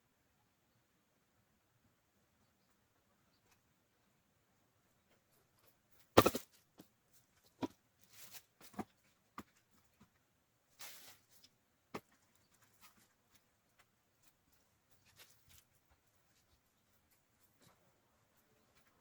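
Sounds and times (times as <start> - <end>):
firewood logs knocking together: 6.2 - 6.9.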